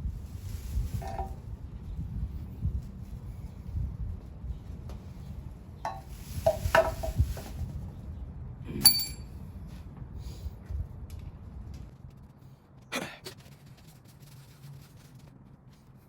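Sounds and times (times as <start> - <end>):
metal tools clinking and knocking: 8.8 - 9.3
sharp ringing metal clink: 8.8 - 9.3.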